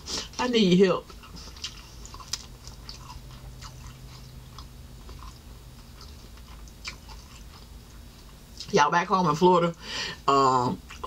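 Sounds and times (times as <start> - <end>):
person chewing: 1.0 - 8.7, 10.8 - 11.0.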